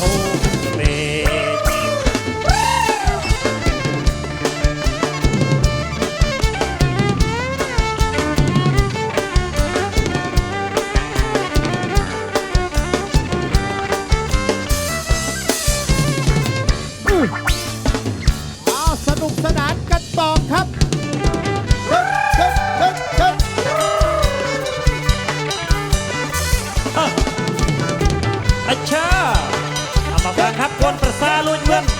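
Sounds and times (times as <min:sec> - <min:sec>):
drum kit beat: 0:00.0 - 0:31.9.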